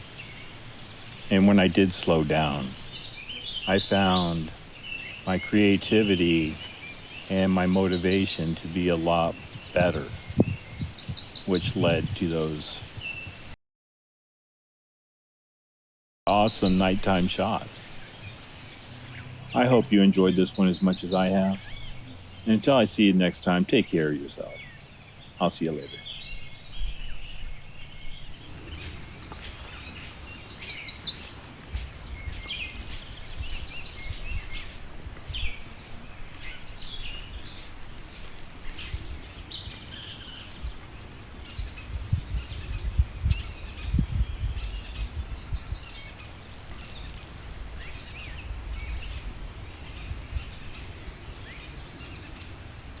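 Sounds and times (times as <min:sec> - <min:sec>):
low uneven rumble: 0:00.0 - 0:13.0, 0:16.3 - 0:38.0
birds chirping and singing: 0:00.0 - 0:13.6, 0:16.3 - 0:53.0.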